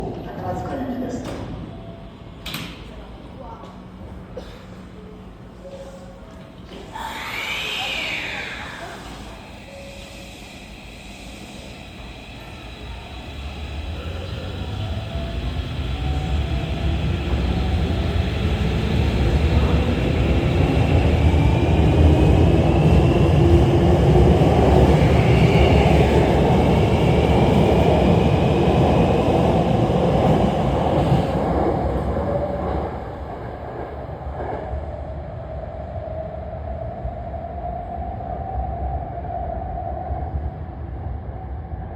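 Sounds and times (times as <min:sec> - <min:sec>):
train wheels rumbling: 0:05.3 - 0:35.2.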